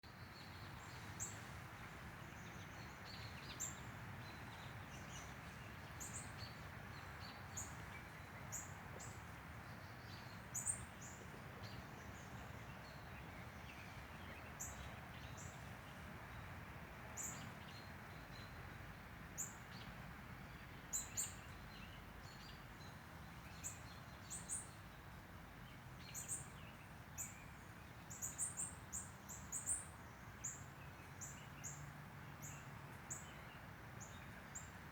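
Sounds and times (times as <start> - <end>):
faint outdoor hiss: 0.0 - 34.9
small birds chirping: 19.4 - 34.9.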